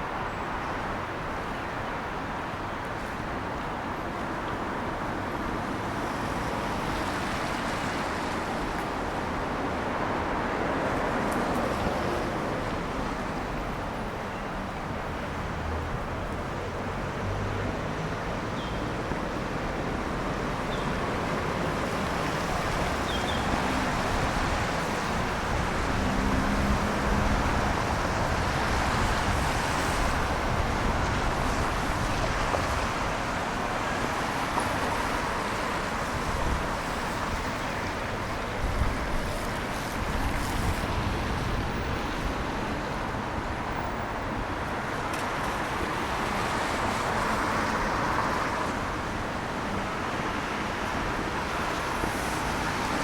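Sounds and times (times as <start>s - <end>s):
tyres hissing on wet road: 0.8s - 53.0s
engines humming: 12.8s - 32.9s.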